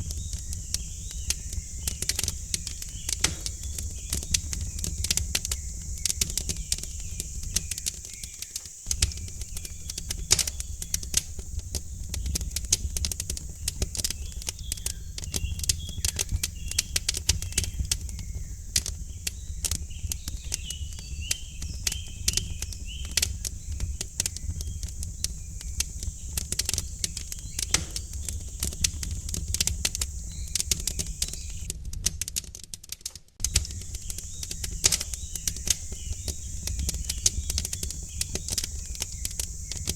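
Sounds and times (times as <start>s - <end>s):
faint songbirds chirping: 0.0s - 31.7s, 33.4s - 39.9s
wood fire crackling and popping: 0.0s - 39.9s.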